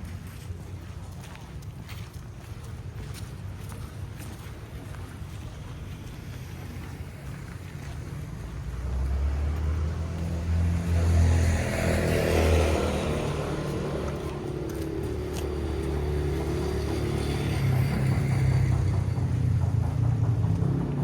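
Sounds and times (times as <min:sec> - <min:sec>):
vehicle engine passing by: 0:07.0 - 0:21.0.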